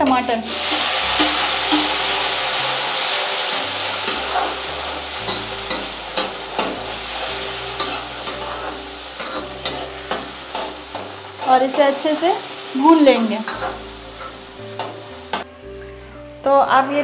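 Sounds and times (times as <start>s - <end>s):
tomatoes sizzling in hot oil: 0.0s - 15.7s
metal spatula scraping a pan: 3.4s - 15.5s.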